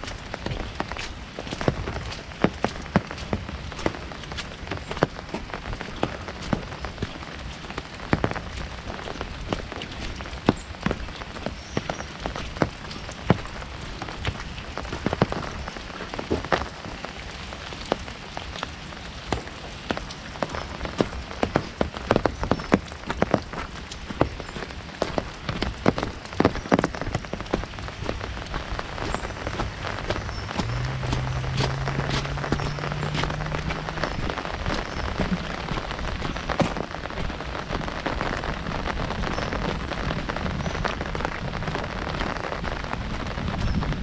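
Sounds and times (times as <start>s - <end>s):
rain hiss: 0.0s - 44.0s
raindrops hitting umbrella: 0.0s - 44.0s.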